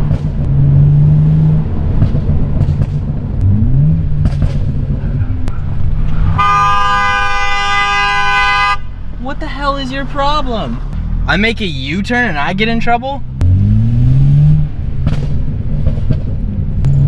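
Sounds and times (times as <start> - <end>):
exhaust pops: 0.0 - 0.6, 1.6 - 6.4, 13.4 - 17.0
car engine running: 0.0 - 7.5
car horn: 6.2 - 9.1.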